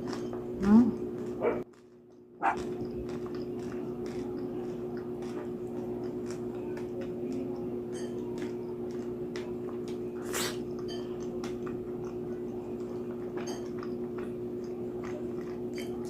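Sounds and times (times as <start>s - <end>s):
crunchy chewing: 0.0s - 16.0s
steady low hum: 0.0s - 16.0s
wet mouth clicks: 10.2s - 10.9s.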